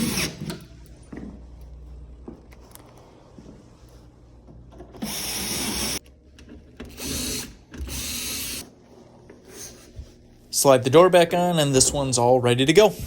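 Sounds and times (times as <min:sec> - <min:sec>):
cordless drill driving screws: 0:05.0 - 0:06.0.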